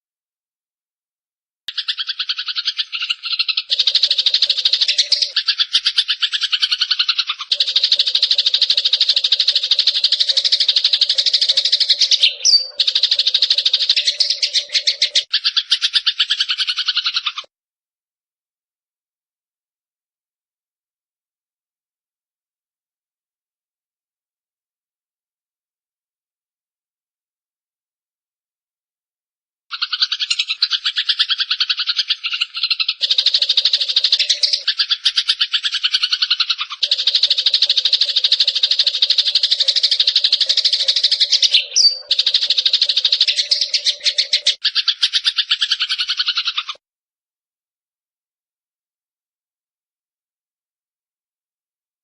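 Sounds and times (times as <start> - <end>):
sparrow rattling trill: 1.7 - 17.5, 29.7 - 46.8.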